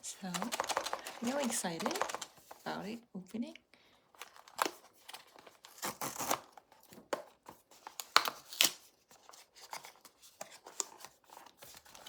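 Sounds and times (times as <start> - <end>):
packaging rustling: 0.0 - 2.9, 4.0 - 12.0
packaging being torn open: 4.2 - 7.1, 7.8 - 10.0.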